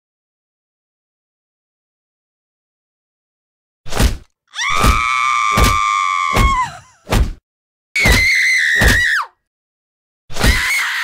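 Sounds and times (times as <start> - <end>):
woman screaming: 4.5 - 7.0, 10.5 - 11.0.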